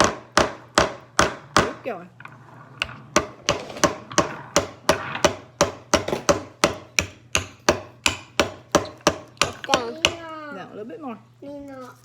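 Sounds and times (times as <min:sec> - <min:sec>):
hammer tapping nail into wood: 0:03.2 - 0:10.2.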